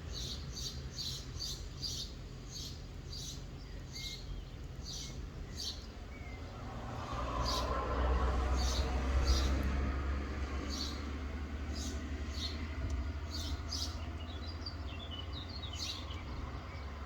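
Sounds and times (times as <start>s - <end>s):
bird chirping: 0.1s - 6.4s, 11.7s - 17.0s
soft rain falling: 1.7s - 14.2s.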